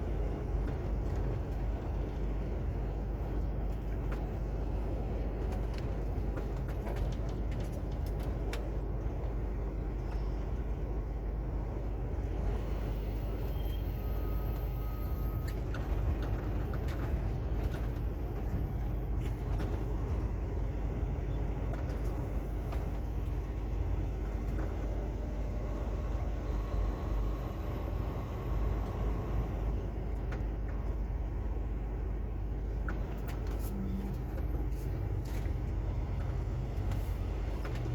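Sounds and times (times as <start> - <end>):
truck diesel engine rumbling: 0.0 - 37.9
faint beep: 13.4 - 15.6.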